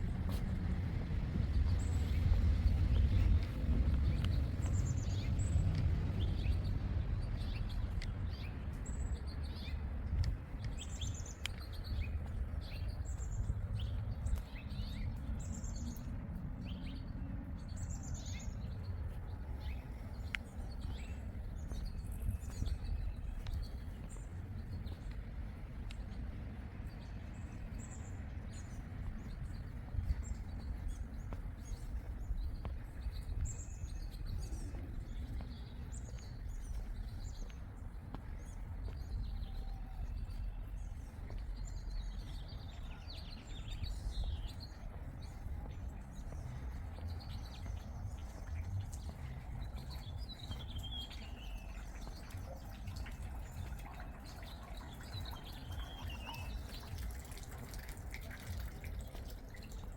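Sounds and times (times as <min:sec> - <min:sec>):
small birds chirping: 0:00.0 - 0:59.9
steady low rumble: 0:00.0 - 0:59.9.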